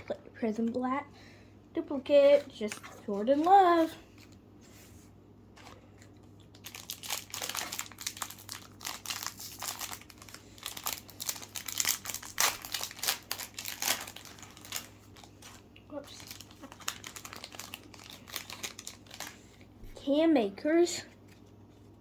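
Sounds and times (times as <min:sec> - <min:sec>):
plastic wrapper crinkling and tearing: 0:05.6 - 0:19.8.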